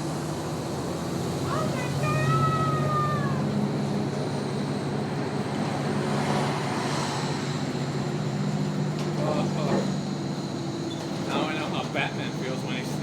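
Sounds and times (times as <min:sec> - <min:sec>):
road noise: 0:00.0 - 0:13.0
truck engine drone: 0:00.0 - 0:13.0.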